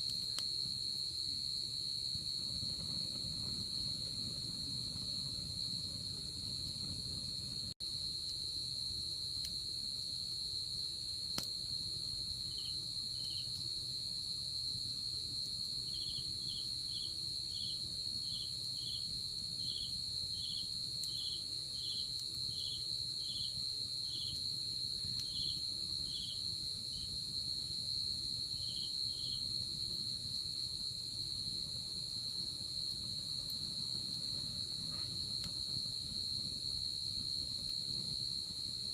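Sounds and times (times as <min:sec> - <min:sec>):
insect high-pitched trill: 0:12.3 - 0:13.6.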